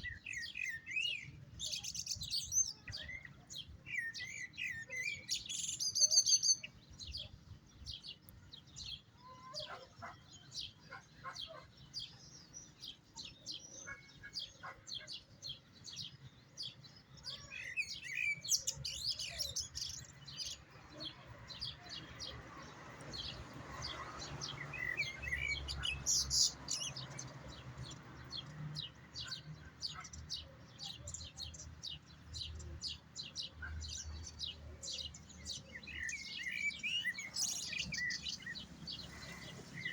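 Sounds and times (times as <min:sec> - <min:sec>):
goldfinch twittering song: 0:00.0 - 0:39.9.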